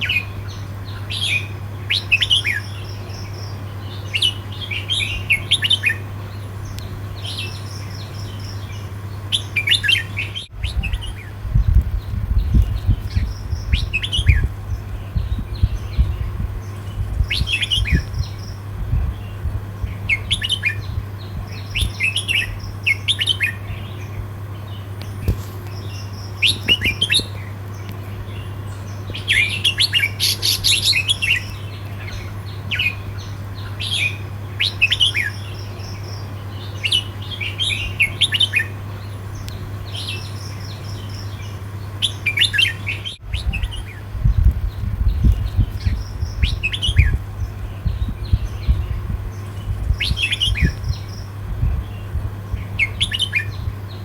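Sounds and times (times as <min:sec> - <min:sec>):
bird singing chirpy phrases: 0:00.0 - 0:54.0
steady low hum: 0:00.0 - 0:54.0.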